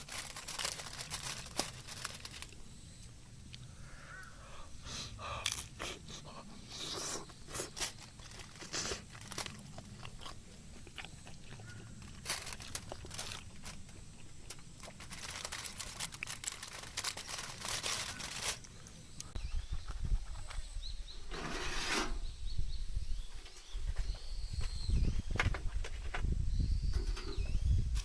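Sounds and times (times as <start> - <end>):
short crisp crunches: 6.7 - 19.4.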